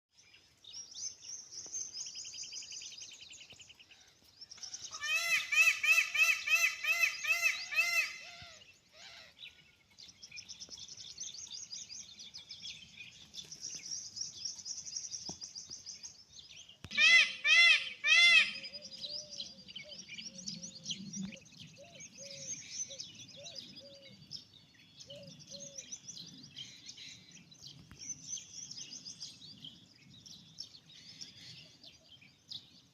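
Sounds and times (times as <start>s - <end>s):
peacock honking calls: 4.9s - 9.3s, 17.0s - 18.7s.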